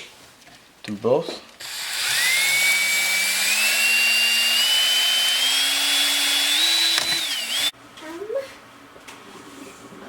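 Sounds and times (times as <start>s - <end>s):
electric drill whining: 1.6s - 7.7s.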